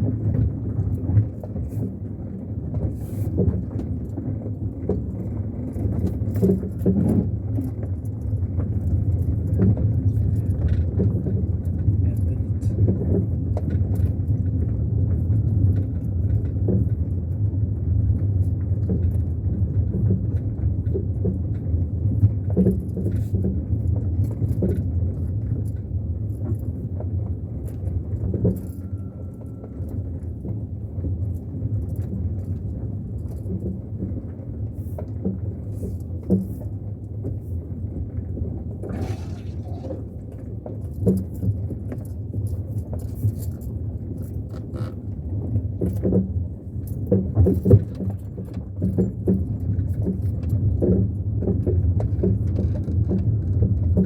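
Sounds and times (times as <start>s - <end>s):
engine and road rumble: 0.0s - 54.0s
knocks and rattles: 38.9s - 40.2s.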